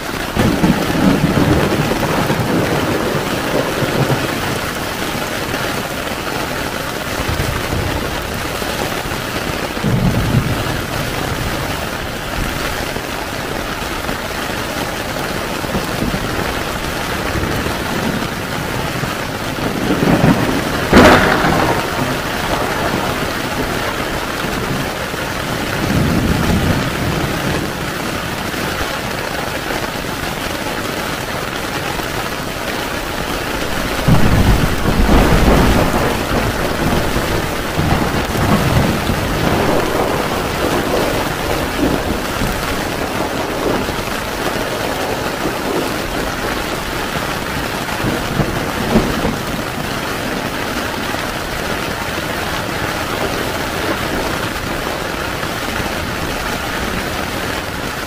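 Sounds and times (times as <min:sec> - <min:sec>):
heavy rain on a tent: 0:00.0 - 0:58.0
thunder rolling: 0:00.2 - 0:13.1, 0:14.1 - 0:57.8
sharp thunderclap: 0:00.3 - 0:05.9, 0:09.7 - 0:12.7, 0:15.6 - 0:28.0, 0:33.1 - 0:50.3.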